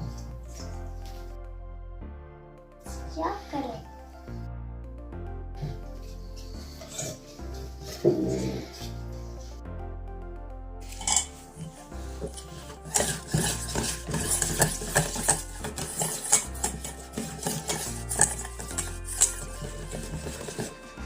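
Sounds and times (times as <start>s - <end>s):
background music with bass line: 0.0s - 21.0s
spoon clinking and scraping bowl: 6.8s - 7.2s, 10.9s - 20.9s.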